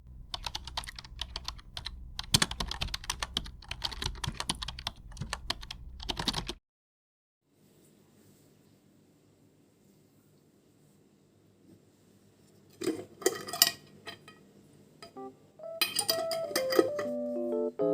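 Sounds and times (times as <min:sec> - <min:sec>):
faint room noise: 0:00.0 - 0:06.6
rapid irregular clicking and tapping: 0:00.0 - 0:06.6.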